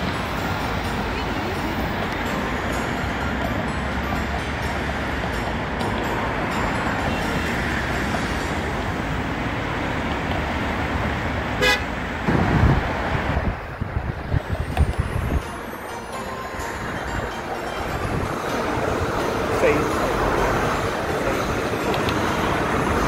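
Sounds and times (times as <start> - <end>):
low buffeting: 0.0 - 23.0
train rolling rush: 0.0 - 23.0
train horn toot: 11.6 - 11.9.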